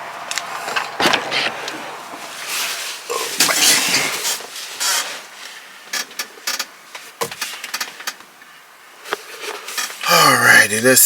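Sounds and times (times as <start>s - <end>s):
rustling handling noise: 0.4s - 10.0s.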